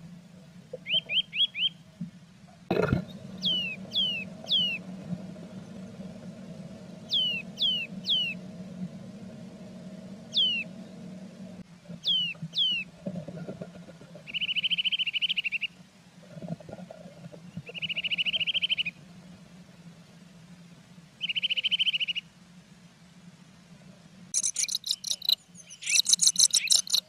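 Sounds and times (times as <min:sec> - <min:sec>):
steady low hum: 0:00.0 - 0:15.1
bird calling: 0:00.8 - 0:01.8, 0:03.2 - 0:04.8, 0:07.0 - 0:08.4, 0:10.3 - 0:10.8, 0:12.0 - 0:12.9, 0:24.4 - 0:27.0
bird trills: 0:03.4 - 0:04.8, 0:07.1 - 0:08.4, 0:10.3 - 0:10.7, 0:12.0 - 0:12.8, 0:24.4 - 0:27.0.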